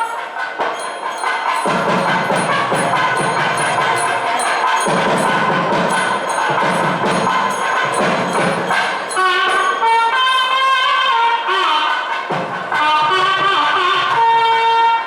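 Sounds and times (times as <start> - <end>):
reedy wind instrument melody: 0.0 - 15.0
dense drumming: 0.6 - 10.2.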